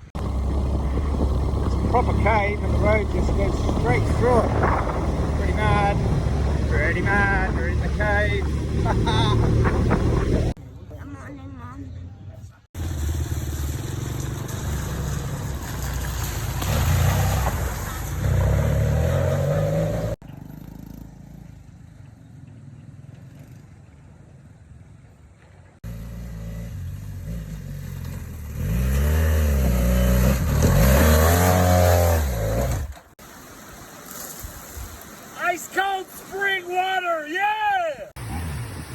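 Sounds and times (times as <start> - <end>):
motorbike engines revving: 0.0 - 10.6, 12.1 - 24.6, 25.8 - 33.2.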